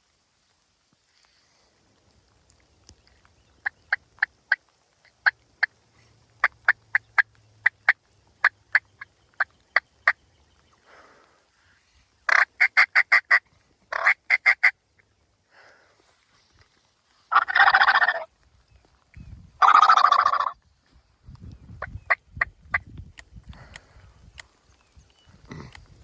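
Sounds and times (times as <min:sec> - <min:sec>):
turkey clucking: 0:12.3 - 0:14.7, 0:17.3 - 0:18.3, 0:19.6 - 0:20.6
turkey yelping: 0:12.3 - 0:14.7, 0:17.3 - 0:18.3, 0:19.6 - 0:20.6.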